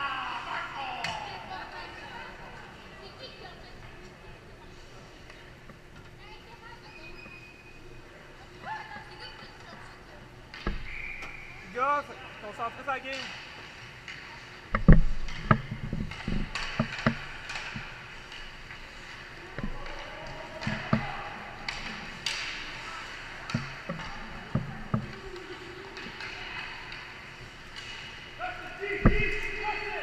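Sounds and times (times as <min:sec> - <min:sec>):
hockey sticks and puck clacking: 0:12.9 - 0:30.0.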